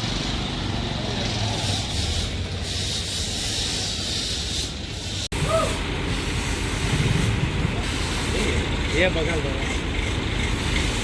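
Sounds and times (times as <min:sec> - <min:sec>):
hiss: 0:01.4 - 0:08.7, 0:10.5 - 0:11.0
heavy machinery engine running: 0:05.8 - 0:11.0.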